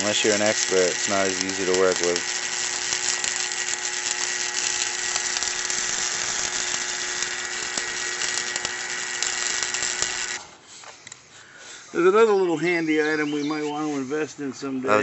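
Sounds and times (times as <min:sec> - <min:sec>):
welding arc crackling: 0:00.0 - 0:10.6.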